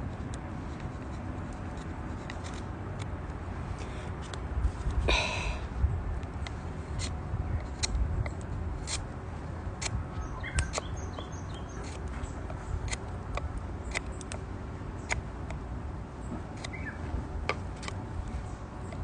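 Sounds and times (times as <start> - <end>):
faint bird chirps: 16.6 - 17.0.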